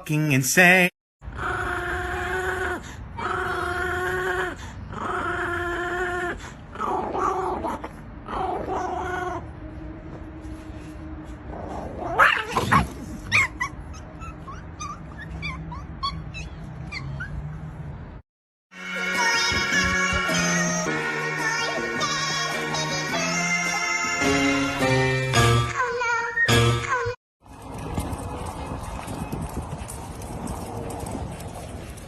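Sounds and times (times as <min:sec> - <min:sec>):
dog crying: 0:01.3 - 0:09.5, 0:12.0 - 0:17.7
dog squeaking: 0:12.1 - 0:17.7.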